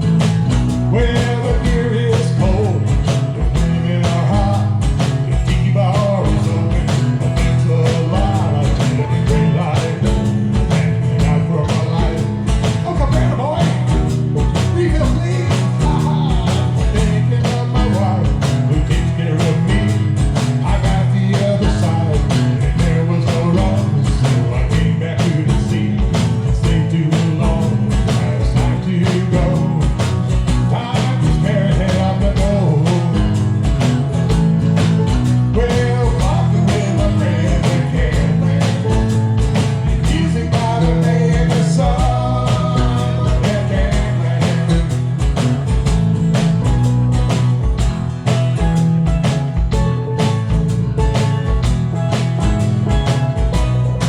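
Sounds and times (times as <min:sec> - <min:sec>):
drum beat: 0:00.0 - 0:54.0
live country-rock band: 0:00.0 - 0:54.0.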